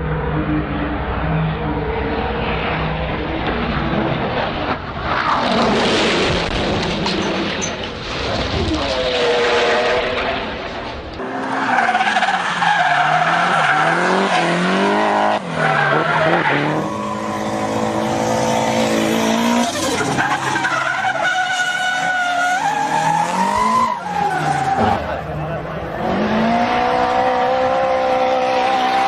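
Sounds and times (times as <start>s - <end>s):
car engine revving hard: 12.8s - 20.4s, 24.7s - 29.0s
tyres squealing: 19.4s - 25.2s.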